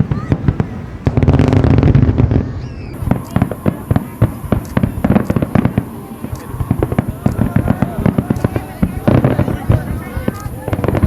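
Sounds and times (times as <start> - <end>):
fireworks bangs and crackles: 0.0 - 11.0
fireworks booming: 0.0 - 11.0
steady high hiss: 2.6 - 11.0.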